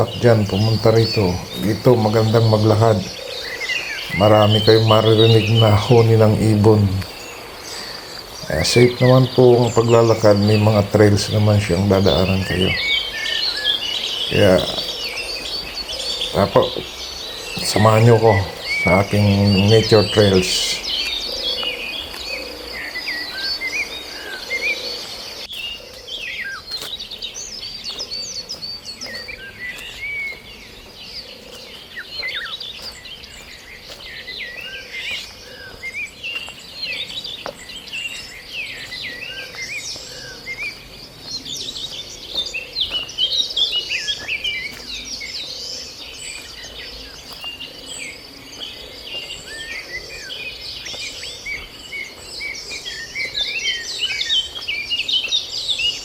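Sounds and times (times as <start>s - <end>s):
high insect buzz: 0.0s - 25.8s
forest birds chirping: 0.0s - 56.0s.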